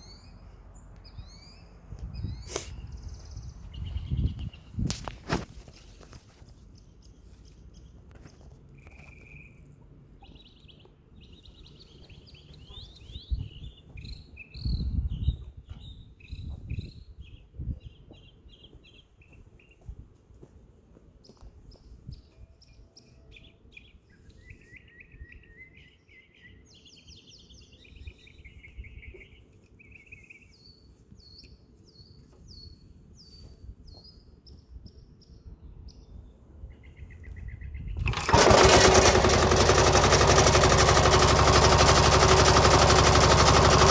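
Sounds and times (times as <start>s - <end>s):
birds singing and chirping: 0.0s - 5.1s, 6.6s - 19.9s
diesel tractor engine: 38.0s - 43.9s.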